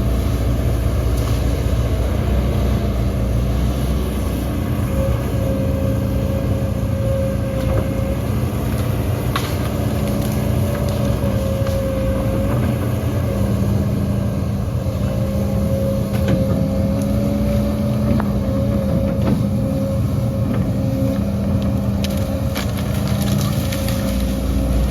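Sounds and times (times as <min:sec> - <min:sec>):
diesel machine engine running: 0:00.0 - 0:24.9.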